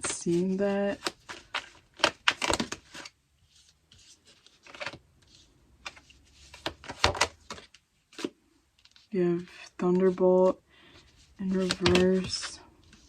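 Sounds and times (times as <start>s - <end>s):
cards shuffling clicks and slaps: 0.0s - 3.1s, 4.0s - 5.0s, 5.8s - 9.1s, 11.5s - 13.0s
cards rustling: 0.0s - 13.0s.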